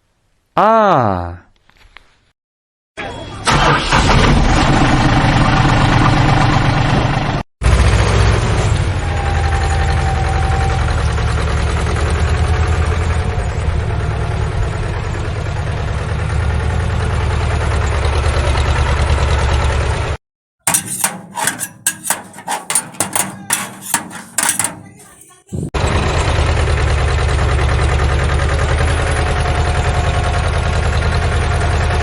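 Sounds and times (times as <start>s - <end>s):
irregular knocks and clatters: 20.7s - 25.4s.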